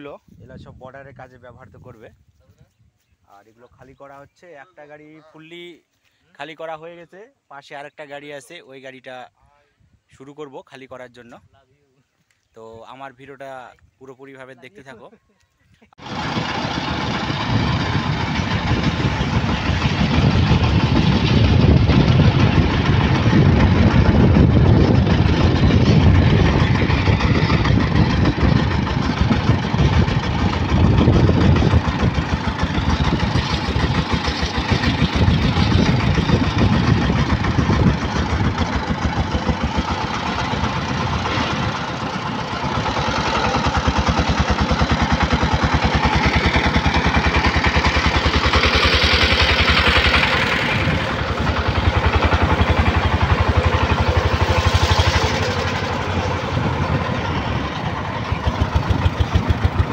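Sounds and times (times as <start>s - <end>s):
diesel engine knocking: 16.0s - 59.9s.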